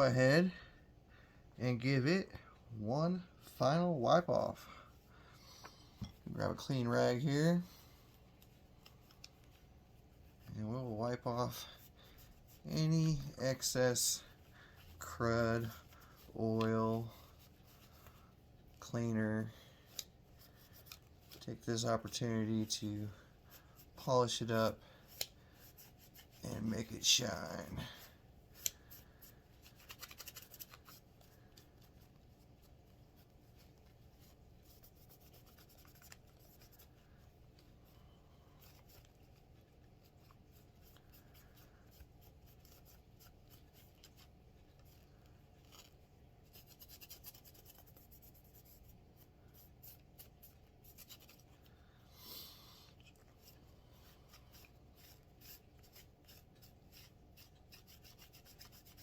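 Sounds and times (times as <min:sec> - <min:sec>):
small scratches and clicks: 0:08.4 - 0:10.6, 0:28.5 - 0:38.0, 0:38.6 - 0:51.8, 0:52.9 - 0:59.0
cloth rubbing on metal: 0:20.2 - 0:51.5.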